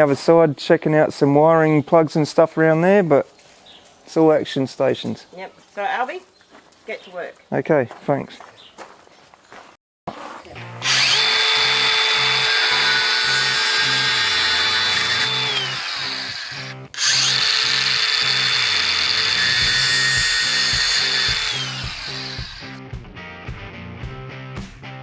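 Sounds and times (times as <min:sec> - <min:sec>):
power drill motor whine: 0:10.8 - 0:22.8.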